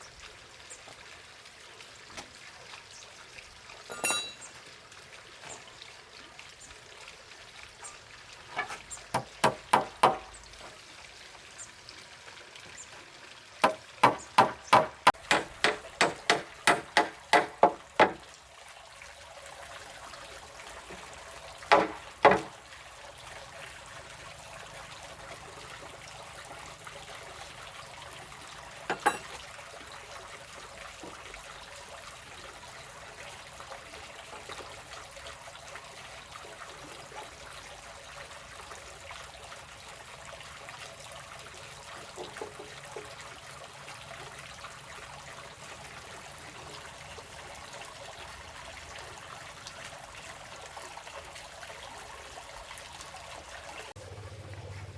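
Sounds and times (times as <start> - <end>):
trickle of running water: 0.0 - 54.9
sharp strikes on wood: 9.1 - 10.3, 13.6 - 18.2, 21.7 - 22.6.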